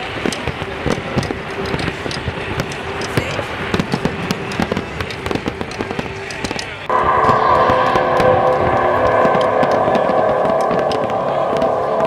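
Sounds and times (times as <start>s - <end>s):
fireworks bangs and crackles: 0.0s - 12.0s
steady tone: 6.8s - 12.0s.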